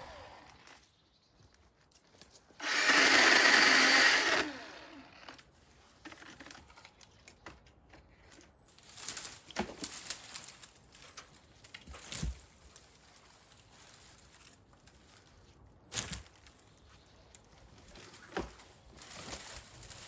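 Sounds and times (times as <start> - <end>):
chainsaw cutting wood: 0.0 - 0.9, 2.6 - 5.4.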